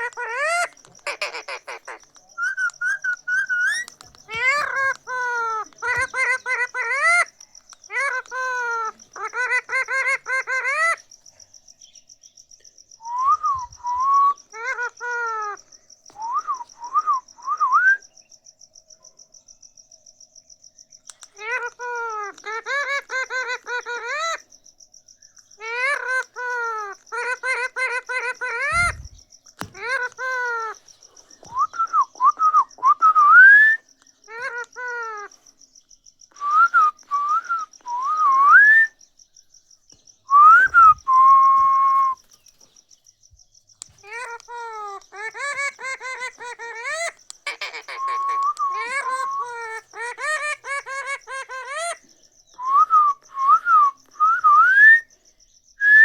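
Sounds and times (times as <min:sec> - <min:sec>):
parrot whistling: 0:00.0 - 0:07.1, 0:31.4 - 0:33.8, 0:36.4 - 0:38.9, 0:40.3 - 0:42.2, 0:44.0 - 0:52.0, 0:52.6 - 0:55.0
parrot chattering calls: 0:00.0 - 0:11.0, 0:13.6 - 0:15.6, 0:21.2 - 0:24.4, 0:25.6 - 0:35.3, 0:43.8 - 0:52.0.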